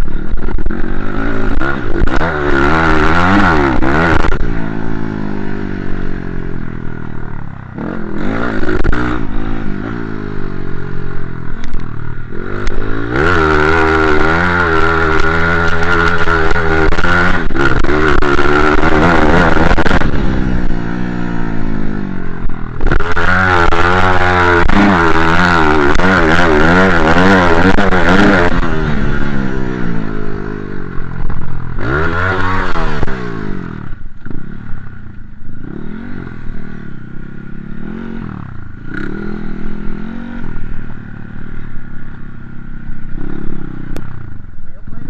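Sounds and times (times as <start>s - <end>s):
dirt bike engine revving: 0.0s - 45.0s.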